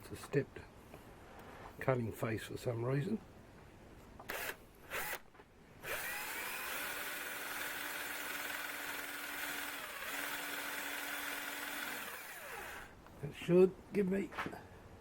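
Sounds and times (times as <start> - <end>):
electric drill running: 4.3 - 5.2, 5.8 - 13.0.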